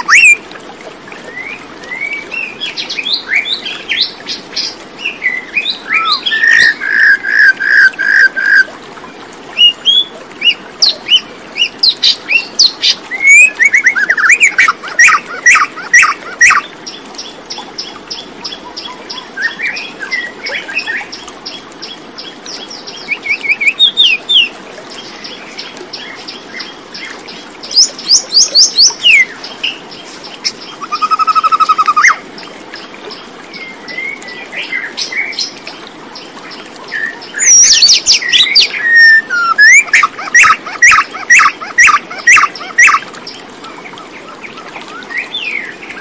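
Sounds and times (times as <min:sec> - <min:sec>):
birds singing and chirping: 0:00.0 - 0:00.4, 0:01.3 - 0:08.7, 0:09.6 - 0:46.0
faint outdoor hiss: 0:00.0 - 0:46.0.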